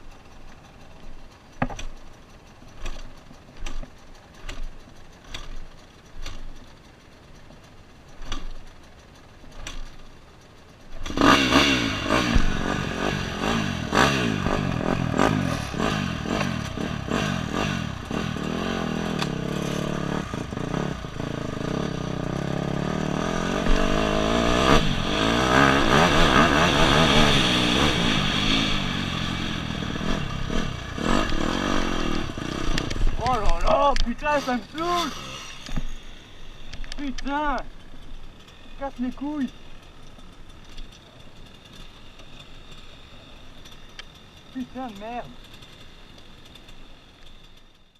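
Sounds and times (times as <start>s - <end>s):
motorbike engine revving: 10.8s - 47.9s.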